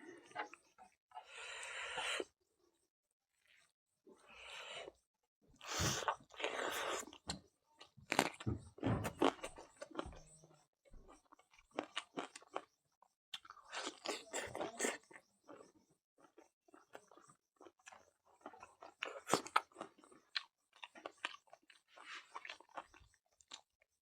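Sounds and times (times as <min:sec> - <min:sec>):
person chewing crunchy food: 0:05.6 - 0:23.8.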